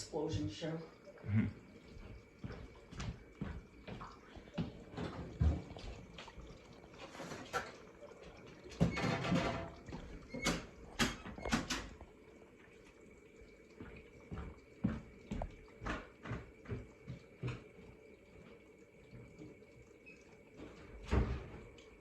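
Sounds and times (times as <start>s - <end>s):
water splashing in dishwasher: 0.0s - 22.0s
dishwasher clicks and knocks: 8.8s - 12.0s.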